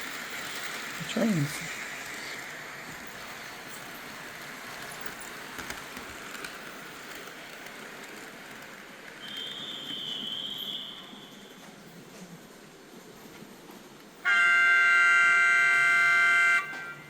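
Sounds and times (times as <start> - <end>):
model train wheels rattling: 0.0 - 10.3
high whistle tone: 9.2 - 11.5.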